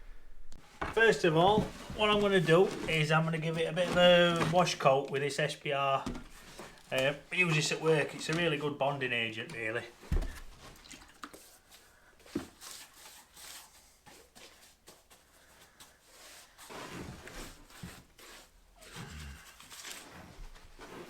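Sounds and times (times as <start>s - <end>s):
rubbing and scraping: 0.0s - 5.4s, 6.0s - 21.0s.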